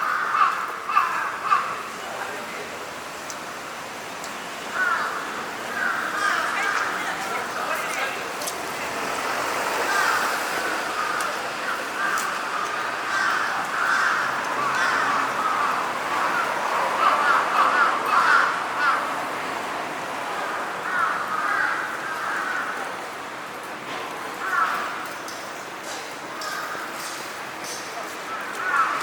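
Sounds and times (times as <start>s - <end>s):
crows cawing: 0.0s - 2.0s, 4.7s - 7.5s, 9.7s - 19.3s, 20.8s - 23.0s, 24.4s - 25.0s, 26.4s - 27.1s, 28.3s - 29.0s.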